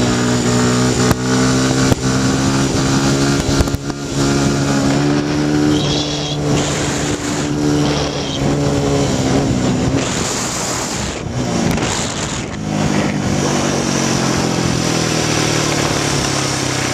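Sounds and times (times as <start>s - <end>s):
dirt bike engine running: 0.0s - 16.9s
noisy rush: 0.0s - 16.9s.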